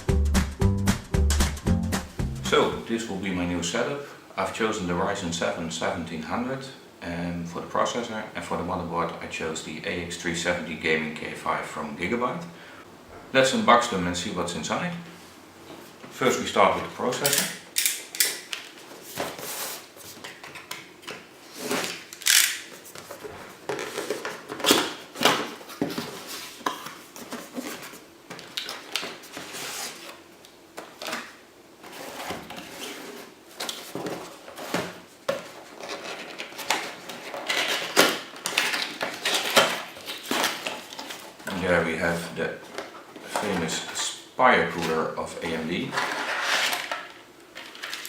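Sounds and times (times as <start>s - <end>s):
packaging rustling: 18.4s - 43.9s
box scraping: 19.0s - 20.2s, 31.8s - 38.0s, 45.7s - 46.9s.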